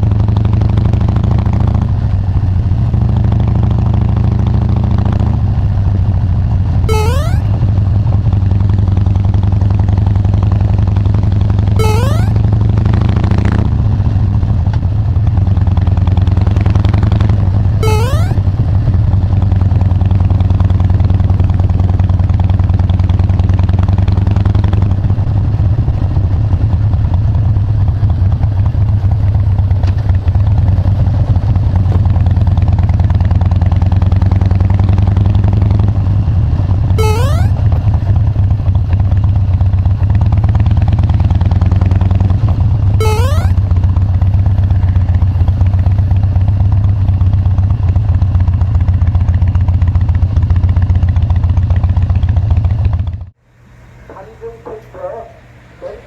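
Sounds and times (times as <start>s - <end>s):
motorcycle engine running: 0.0s - 53.4s
short rising chirp: 6.9s - 7.6s, 11.8s - 12.4s, 17.8s - 18.4s, 37.0s - 37.6s, 43.0s - 43.6s.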